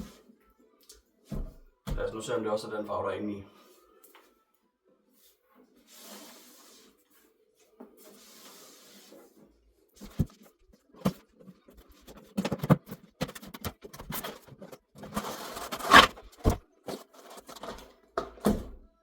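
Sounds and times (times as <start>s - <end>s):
packaging rustling: 11.7s - 17.9s
cardboard box knocks and scrapes: 12.1s - 18.8s.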